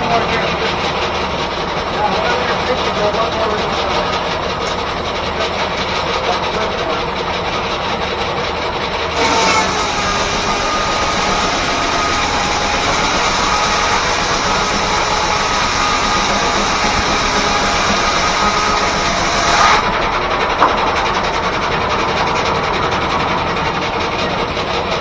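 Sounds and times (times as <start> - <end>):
steam-driven sawmill running: 0.0 - 25.0
high whine: 9.2 - 20.1.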